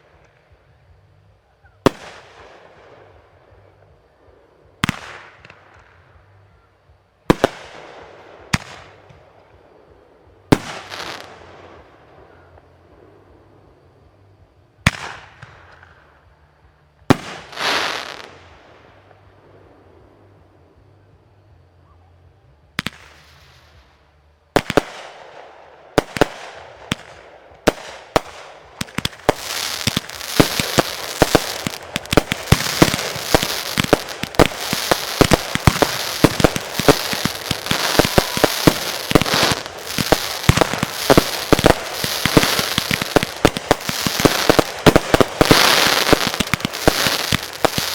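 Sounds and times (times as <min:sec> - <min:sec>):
fireworks bangs: 0:10.5 - 0:12.5, 0:24.6 - 0:47.9
fireworks crackling: 0:17.0 - 0:19.3, 0:22.8 - 0:47.9.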